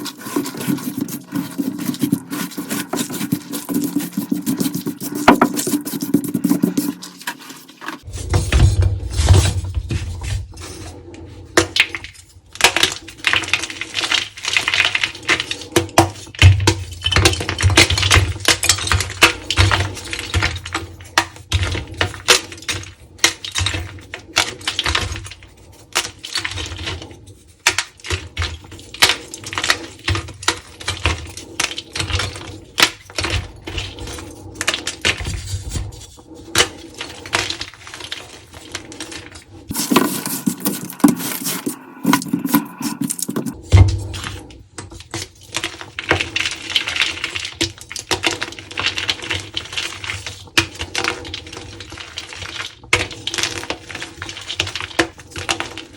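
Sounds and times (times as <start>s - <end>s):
chalk blocks being crushed: 39.7s - 43.6s.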